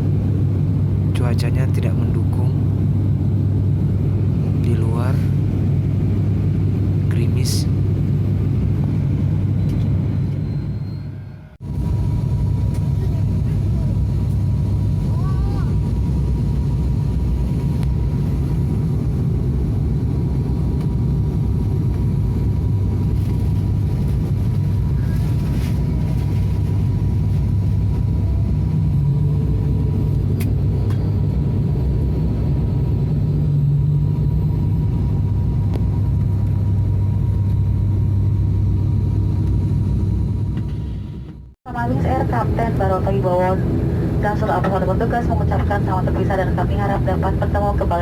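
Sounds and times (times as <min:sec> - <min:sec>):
turboprop engines droning in cabin: 0:00.0 - 0:48.0.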